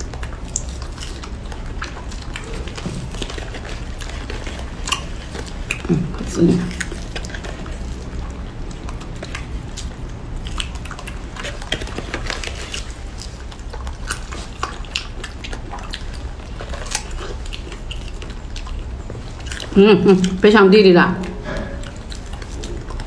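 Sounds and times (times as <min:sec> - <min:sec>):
person chewing strawberries: 0:00.0 - 0:20.4, 0:21.2 - 0:23.0
low steady hum: 0:00.0 - 0:23.0.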